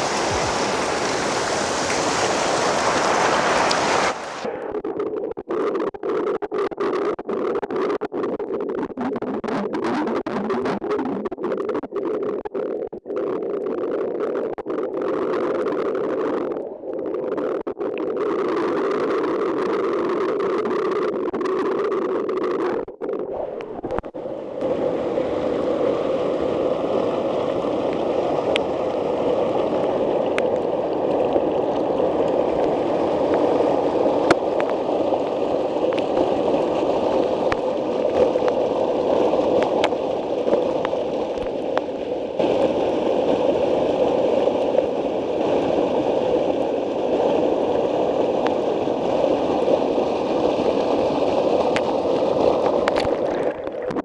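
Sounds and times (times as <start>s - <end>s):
water pouring over waterfall: 0.0s - 4.5s, 24.6s - 54.0s.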